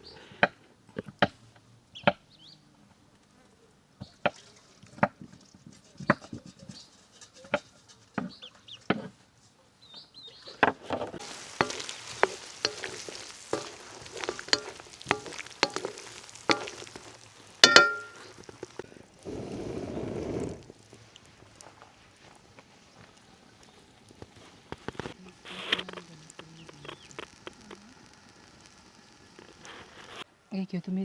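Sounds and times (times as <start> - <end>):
food sizzling in pot: 10.6 - 30.3
utensil knocking against pot: 11.2 - 18.8
ringing metallic clang: 17.6 - 18.2.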